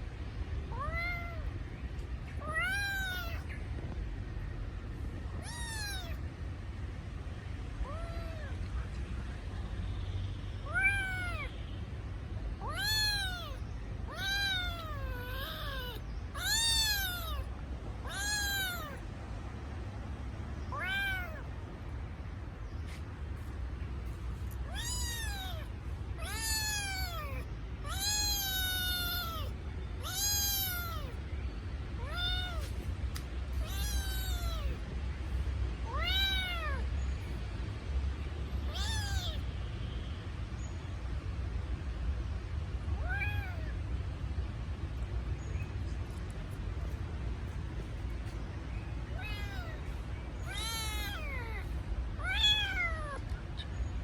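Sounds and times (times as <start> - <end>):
kitten meowing: 0.7 - 1.5, 2.4 - 3.5, 5.4 - 6.2, 7.8 - 8.6, 10.6 - 11.5, 12.6 - 19.0, 20.7 - 21.5, 24.6 - 31.2, 32.0 - 32.8, 33.6 - 34.8, 35.9 - 36.8, 38.7 - 39.4, 43.0 - 43.7, 49.1 - 53.2.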